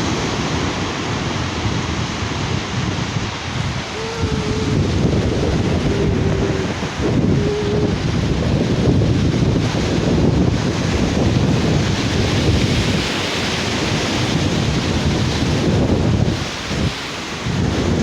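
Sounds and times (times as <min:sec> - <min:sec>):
sea surf breaking: 0:00.0 - 0:18.0
wind buffeting microphone: 0:00.0 - 0:18.0.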